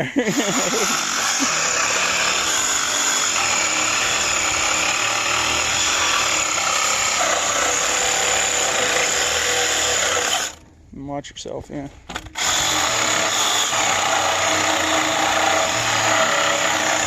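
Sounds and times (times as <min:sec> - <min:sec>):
power saw cutting metal: 0:00.3 - 0:10.6, 0:12.2 - 0:17.0.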